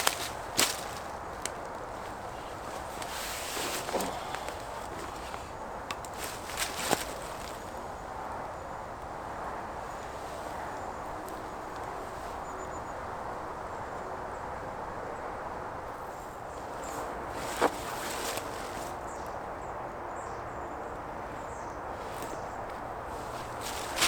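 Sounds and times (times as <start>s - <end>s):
footsteps or snapping twigs: 0.0s - 7.9s, 16.8s - 19.3s, 22.0s - 24.0s
outdoor background noise: 0.0s - 24.0s.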